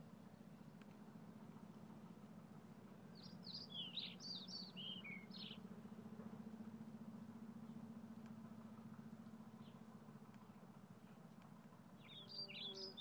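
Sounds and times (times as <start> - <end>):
faint low hum: 0.0 - 13.0
songbird chirping: 3.1 - 5.7, 12.0 - 13.0.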